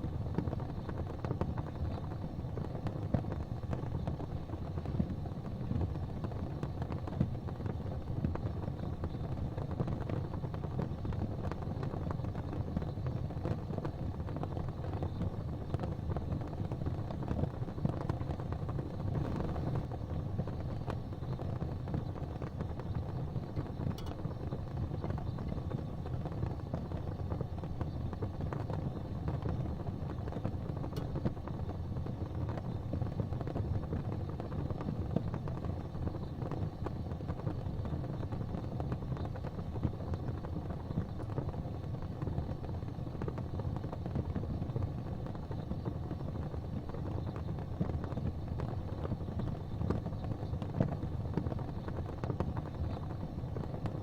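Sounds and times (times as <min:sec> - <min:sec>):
gas fireplace flames rumbling: 0:00.0 - 0:54.0
faint ticks: 0:23.6 - 0:31.6.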